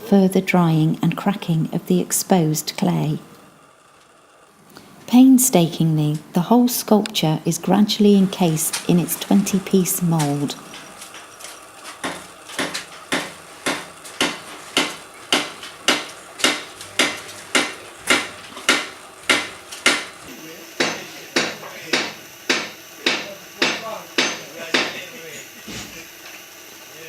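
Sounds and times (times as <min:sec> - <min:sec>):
hammer blows ringing: 0:12.0 - 0:25.2.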